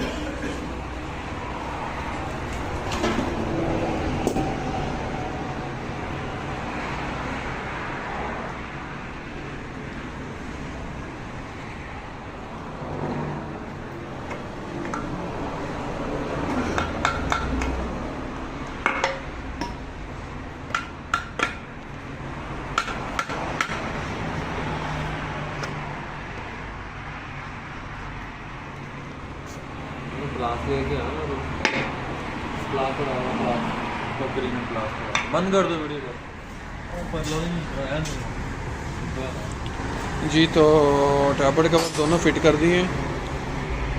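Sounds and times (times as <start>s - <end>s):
workshop background hum: 14.0s - 22.0s, 28.7s - 32.7s, 36.3s - 43.6s.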